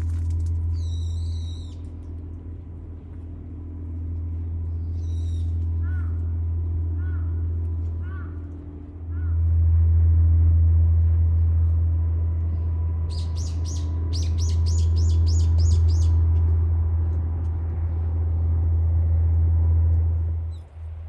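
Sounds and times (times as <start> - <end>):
steady low rumble: 0.0 - 21.0
small bird chirping: 13.1 - 16.2.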